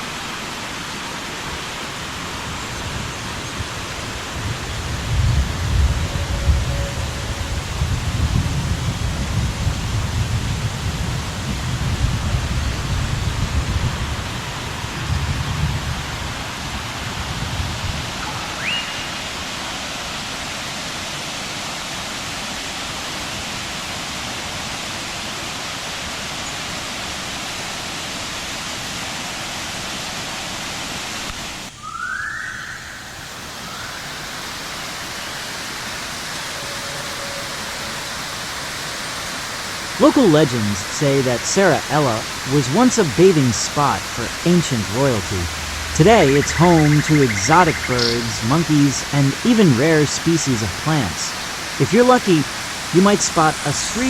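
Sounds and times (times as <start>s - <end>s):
waterfall rushing: 0.0s - 54.0s
short rising whistles: 18.2s - 19.4s
low rumble: 45.4s - 46.1s.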